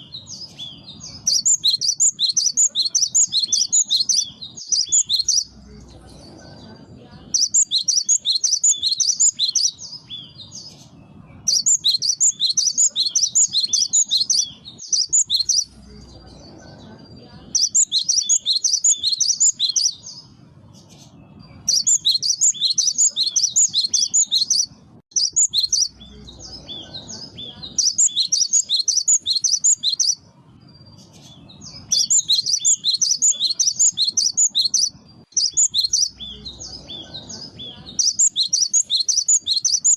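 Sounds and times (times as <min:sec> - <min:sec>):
bird singing sharp high notes: 0:00.0 - 0:05.6, 0:17.5 - 0:26.4, 0:27.2 - 0:39.9
faint low rumble: 0:00.0 - 0:28.5, 0:29.4 - 0:38.5.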